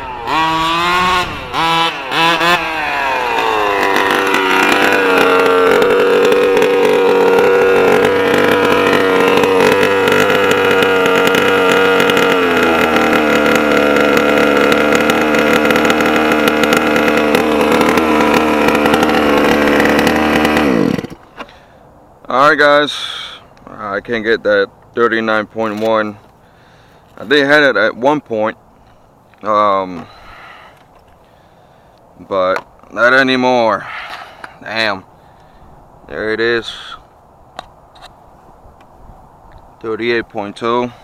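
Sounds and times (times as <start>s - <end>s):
two-stroke engine at high revs: 0.0s - 21.7s.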